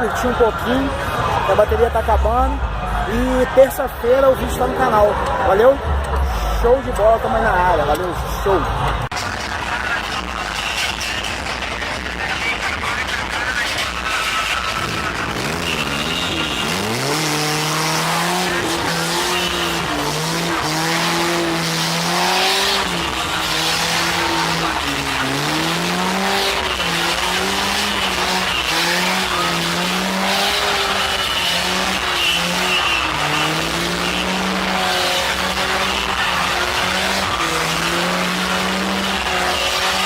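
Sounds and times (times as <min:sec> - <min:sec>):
car engine revving high: 0:00.0 - 0:40.0
tyres screeching: 0:12.5 - 0:40.0.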